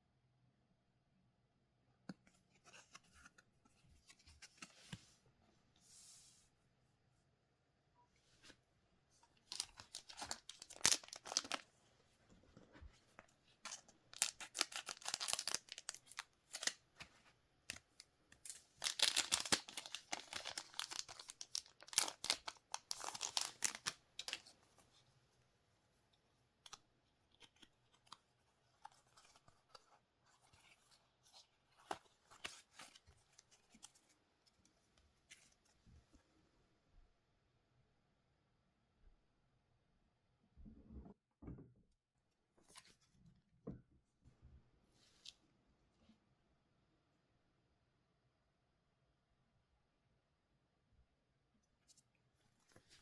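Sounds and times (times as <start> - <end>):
packaging being torn open: 13.7 - 16.8, 18.8 - 24.4.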